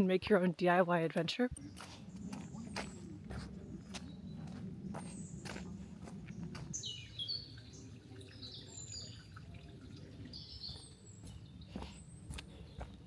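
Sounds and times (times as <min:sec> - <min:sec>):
low steady rumble: 0:01.5 - 0:08.2
birds chirping and calling: 0:01.5 - 0:13.0.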